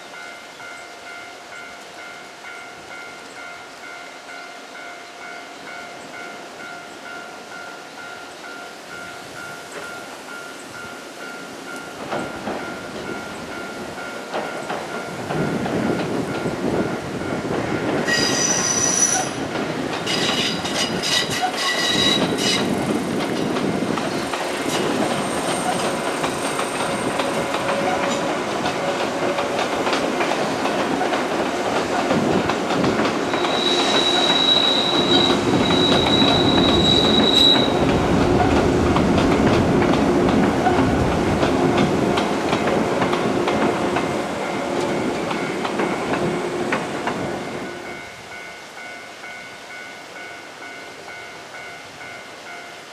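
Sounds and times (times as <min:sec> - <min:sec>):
electric train rumbling past: 0:00.0 - 0:52.9
wheel squeal: 0:18.1 - 0:19.4, 0:20.1 - 0:22.7, 0:33.3 - 0:37.8.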